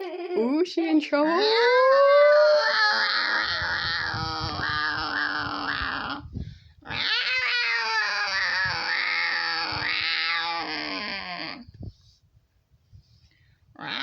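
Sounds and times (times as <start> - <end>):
cat yowling: 1.4 - 6.3, 6.9 - 11.7.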